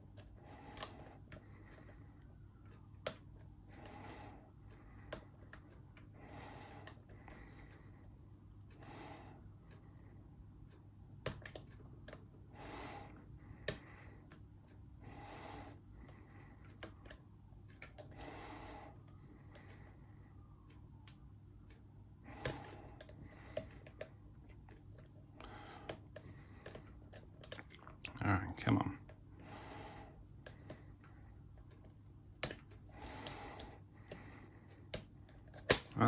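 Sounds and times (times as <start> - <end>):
slow breathing: 0.1 - 11.0, 12.2 - 28.0, 29.0 - 36.0
lock pick clicking: 34.9 - 36.0.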